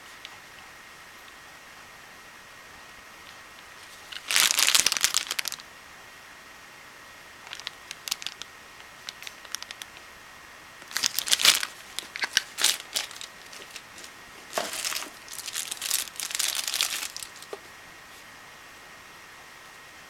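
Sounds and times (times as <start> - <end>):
packaging crinkling: 3.8 - 5.6, 7.5 - 9.9, 10.8 - 17.6.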